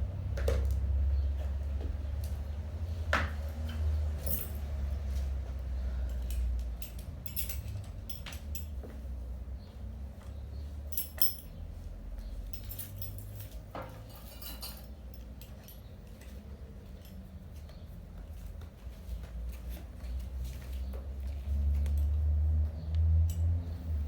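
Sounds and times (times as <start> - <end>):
light metallic clinks: 3.7 - 5.3, 6.0 - 9.0, 10.9 - 11.6, 12.2 - 17.8, 23.2 - 24.0.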